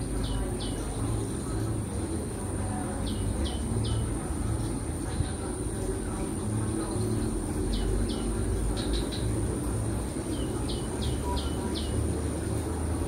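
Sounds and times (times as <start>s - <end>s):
small bird chirping: 0.0s - 1.8s, 3.0s - 5.5s, 6.7s - 12.1s.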